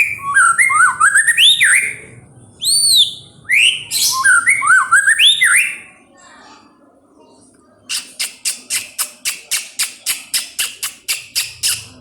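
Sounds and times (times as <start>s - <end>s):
bird singing whistled notes: 0.0s - 5.9s.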